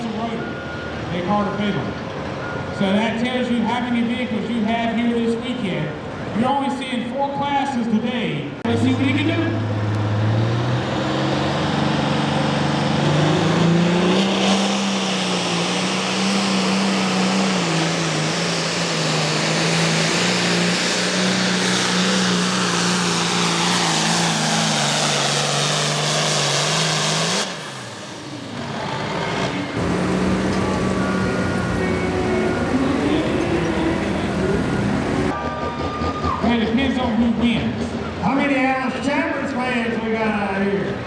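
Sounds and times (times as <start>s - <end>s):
high engine whine: 8.7s - 38.2s
tractor diesel engine running hard: 9.6s - 36.2s.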